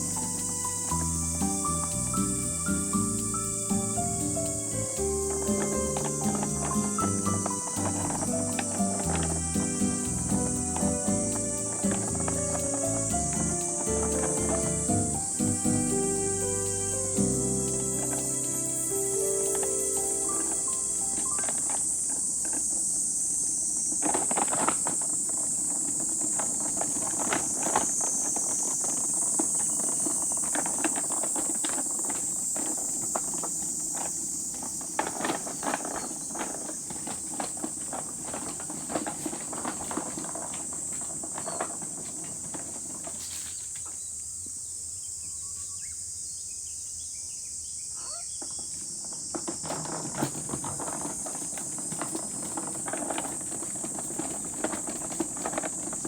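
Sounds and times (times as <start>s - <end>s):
high-pitched insect chorus: 0.0s - 56.0s
close clicks knocks and rustles: 48.4s - 56.0s.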